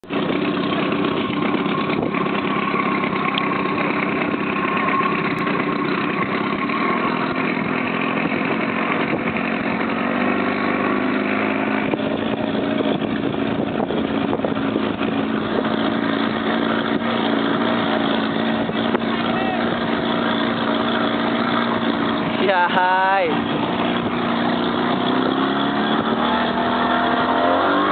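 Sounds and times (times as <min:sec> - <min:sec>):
motorboat engine running: 0:00.0 - 0:27.9
rushing wind: 0:00.0 - 0:27.9
water noise: 0:00.0 - 0:27.9.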